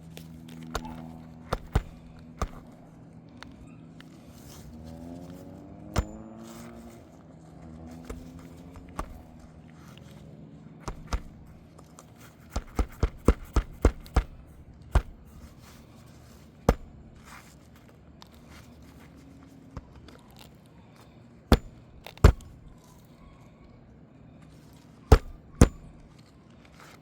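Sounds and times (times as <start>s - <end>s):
hammer striking nails through shingles: 0.7s - 2.8s, 6.0s - 6.7s, 8.1s - 9.5s, 10.8s - 11.6s, 12.4s - 15.7s, 16.6s - 17.3s, 21.5s - 22.7s, 25.1s - 26.1s.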